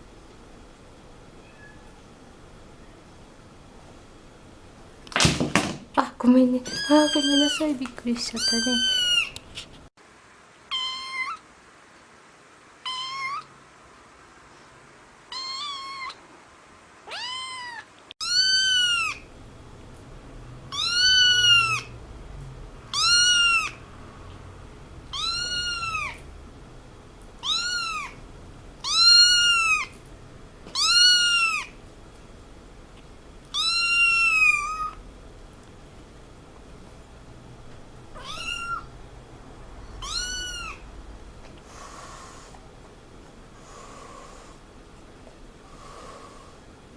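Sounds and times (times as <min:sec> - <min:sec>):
cat meowing: 0:01.4 - 0:02.0, 0:06.7 - 0:07.7, 0:08.4 - 0:09.4, 0:10.7 - 0:11.4, 0:12.8 - 0:13.5, 0:15.3 - 0:16.2, 0:17.1 - 0:19.2, 0:20.7 - 0:21.9, 0:22.9 - 0:23.8, 0:25.1 - 0:26.2, 0:27.4 - 0:28.2, 0:28.8 - 0:30.0, 0:30.7 - 0:31.8, 0:33.5 - 0:35.0, 0:38.2 - 0:38.9, 0:40.0 - 0:40.9.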